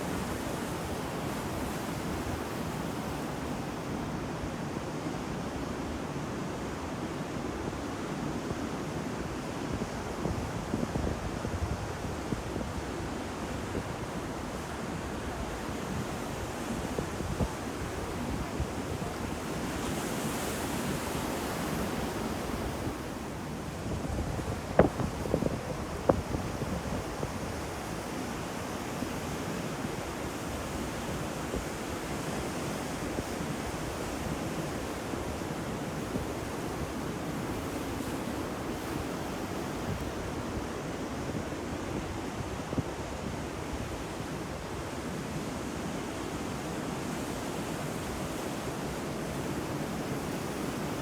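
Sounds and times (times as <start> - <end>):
wind on microphone: 16.7 - 28.0.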